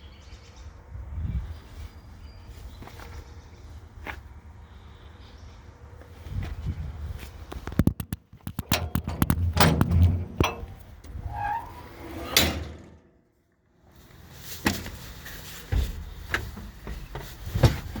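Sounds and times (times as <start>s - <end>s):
knocks and metallic clatter: 7.6s - 13.1s.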